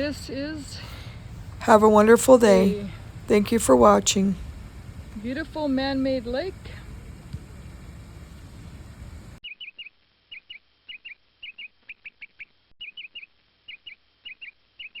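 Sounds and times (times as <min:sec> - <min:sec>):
background rumble: 0:00.0 - 0:09.4.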